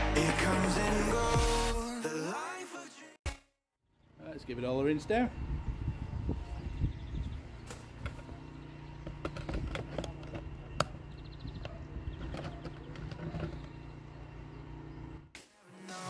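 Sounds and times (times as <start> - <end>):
pressure washer motor hum: 7.5 - 15.3.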